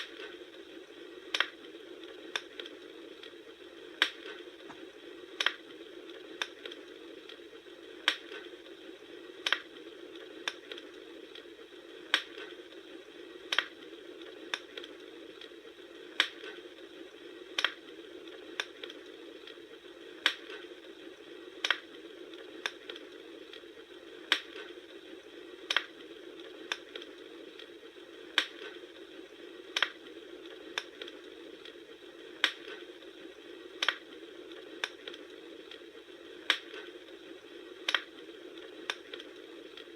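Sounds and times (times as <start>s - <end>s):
low hiss of burning fire: 0.0s - 39.9s
campfire pops and snaps: 1.3s - 1.6s, 2.3s - 3.3s, 4.0s - 5.6s, 6.4s - 7.4s, 8.0s - 8.5s, 9.4s - 9.7s, 10.4s - 11.4s, 12.1s - 12.6s, 13.4s - 13.8s, 14.4s - 15.5s, 16.1s - 16.6s, 17.5s - 17.8s, 18.5s - 19.6s, 20.2s - 20.6s, 21.6s - 21.9s, 22.6s - 23.0s, 24.2s - 24.8s, 25.6s - 26.0s, 26.6s - 27.7s, 28.3s - 28.8s, 29.7s - 30.0s, 30.7s - 31.2s, 32.4s - 32.9s, 33.7s - 34.1s, 34.8s - 35.8s, 36.4s - 37.0s, 37.8s - 39.9s.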